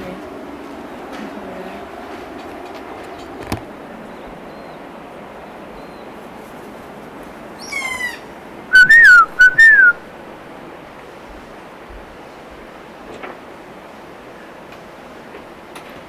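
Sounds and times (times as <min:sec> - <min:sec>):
parrot shrieking: 0:07.6 - 0:09.9
parrot wavering calls: 0:07.6 - 0:10.1.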